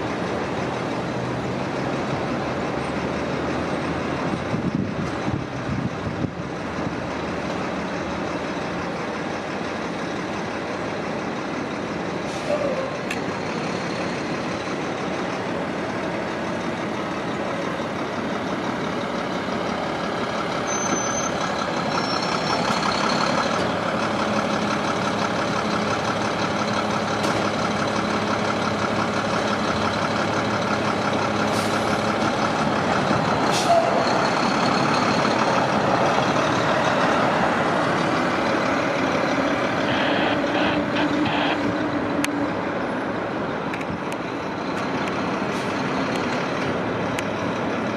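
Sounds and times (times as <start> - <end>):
subway train wheels rumbling: 0.0 - 47.9
wheel squeals: 20.6 - 22.8.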